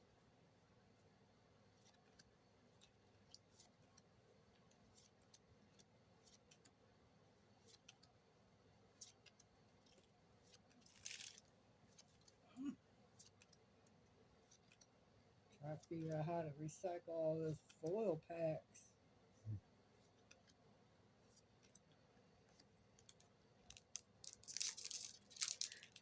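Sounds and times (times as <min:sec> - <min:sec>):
foil wrapper crinkling: 0:10.8 - 0:12.1, 0:23.0 - 0:26.0.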